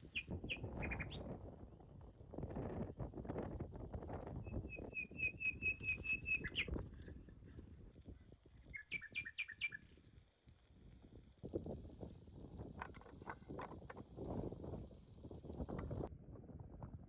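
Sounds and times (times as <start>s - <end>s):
rustling and crackling: 10.5s - 16.1s.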